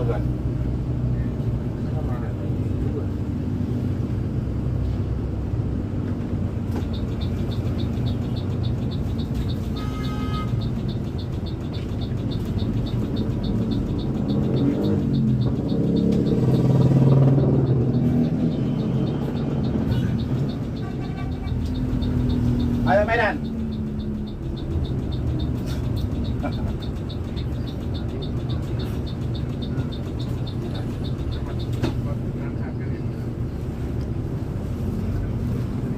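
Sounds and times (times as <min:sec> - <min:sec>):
bus engine revving: 0:00.0 - 0:35.9
fast high ticking: 0:06.9 - 0:31.8.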